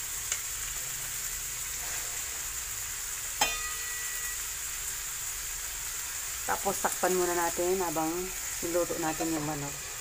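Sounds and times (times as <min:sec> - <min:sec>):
chicken sizzling in a pan: 0:00.0 - 0:10.0
metallic clink: 0:03.4 - 0:04.3.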